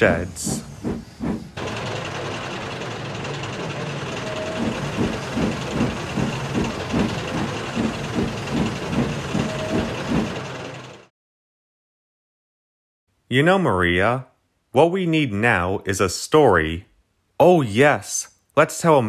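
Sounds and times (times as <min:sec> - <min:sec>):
locomotive rumble with hiss: 0:00.0 - 0:11.0
regular train wheel clatter: 0:00.0 - 0:11.1.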